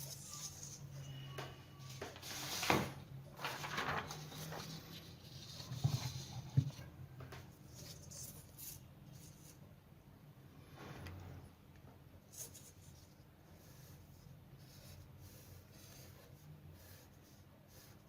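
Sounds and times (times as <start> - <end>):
paper rustling: 1.9 - 6.8.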